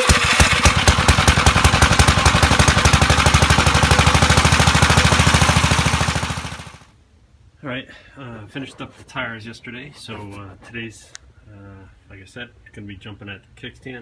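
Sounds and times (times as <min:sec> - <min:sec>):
tractor engine puttering: 0:00.0 - 0:06.8.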